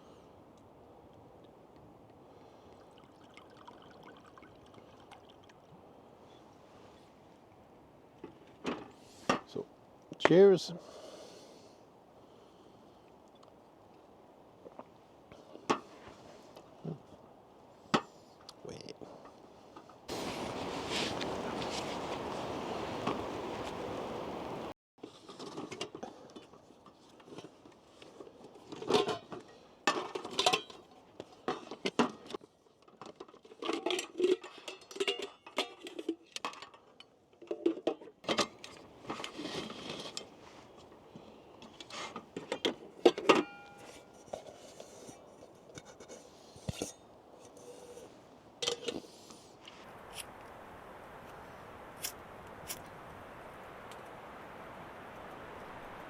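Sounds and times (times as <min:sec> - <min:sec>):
steady soft hiss: 0:19.6 - 0:24.7, 0:43.6 - 0:56.0
pots and utensils clinking: 0:28.7 - 0:30.8, 0:33.0 - 0:38.5, 0:41.8 - 0:45.9
ringing metal clink: 0:43.4 - 0:44.1.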